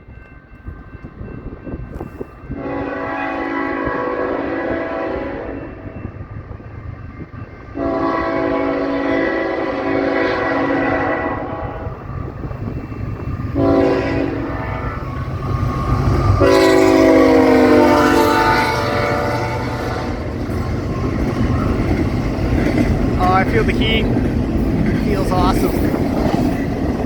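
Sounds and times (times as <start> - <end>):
train rumbling past: 0.0 - 27.0
locomotive horn blasts: 2.5 - 5.9, 7.8 - 12.0, 13.6 - 15.2, 16.2 - 20.3.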